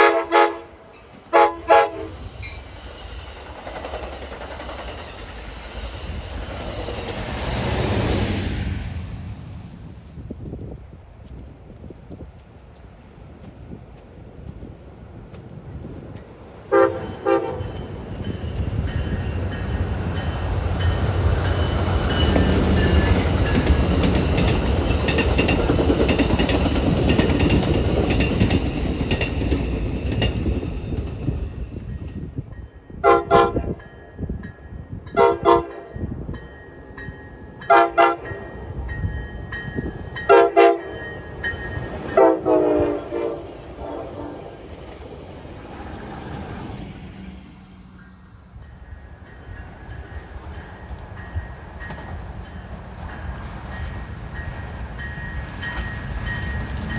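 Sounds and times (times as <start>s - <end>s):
train horn blasts: 0.0s - 2.3s, 16.7s - 18.0s, 33.0s - 33.8s, 35.1s - 36.1s, 37.6s - 38.5s, 40.3s - 41.0s, 42.1s - 44.7s
train wheels rumbling on rails: 0.0s - 56.9s.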